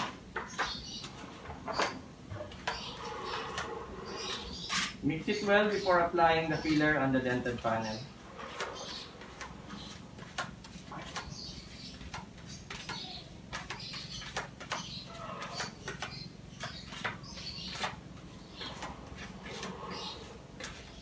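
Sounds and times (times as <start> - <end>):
scraping on metal pallet: 0.0 - 10.0.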